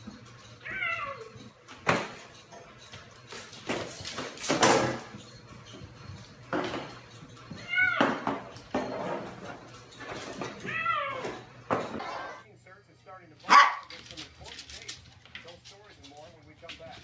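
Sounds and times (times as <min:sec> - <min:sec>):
pet animal crying: 0:00.6 - 0:01.4, 0:10.6 - 0:11.4.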